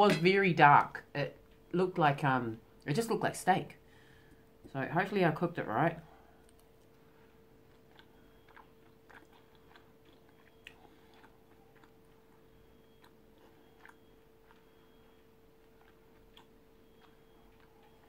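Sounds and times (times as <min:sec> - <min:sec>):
faint hum: 0:00.0 - 0:18.0
chewing mouth clicks and smacks: 0:06.4 - 0:07.0, 0:07.6 - 0:18.0.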